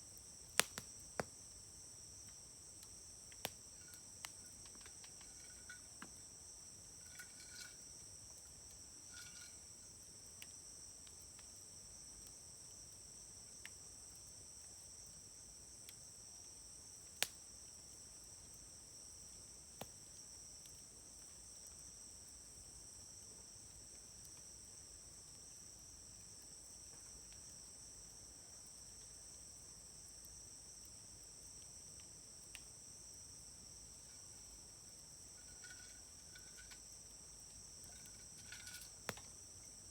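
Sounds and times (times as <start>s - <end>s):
insects chirring: 0.0s - 39.9s
campfire wood popping: 0.2s - 11.6s, 33.9s - 39.5s.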